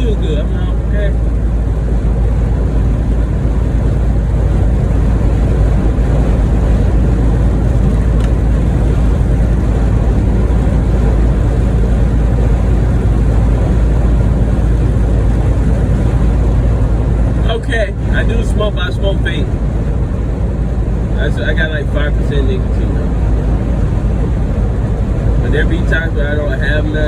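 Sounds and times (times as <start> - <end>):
road noise: 0.0 - 27.0
truck engine drone: 0.0 - 27.0.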